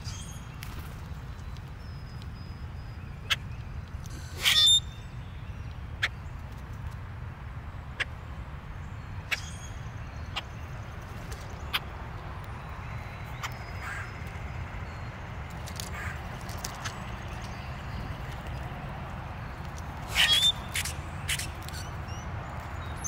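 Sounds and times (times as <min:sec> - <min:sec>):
birds calling: 0:07.8 - 0:23.0.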